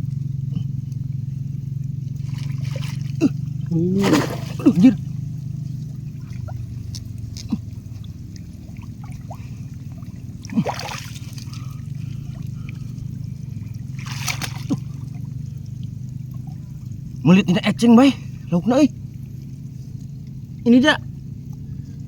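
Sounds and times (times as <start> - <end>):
low hum: 0.0 - 22.0
shallow water sloshing: 0.0 - 22.0
loud water splashes: 2.2 - 6.8, 7.5 - 15.5.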